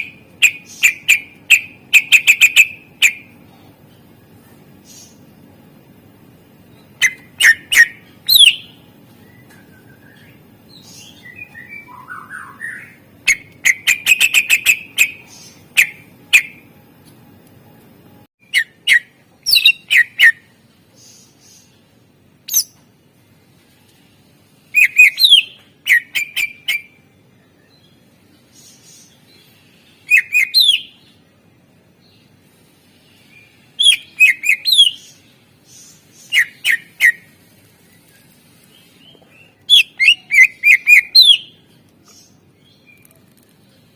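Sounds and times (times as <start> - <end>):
bird singing chirps and whistles: 0.0 - 3.3, 6.7 - 16.6, 18.4 - 20.5, 22.5 - 22.8, 24.7 - 27.0, 30.0 - 31.0, 33.4 - 35.2, 35.8 - 37.3, 39.0 - 41.6.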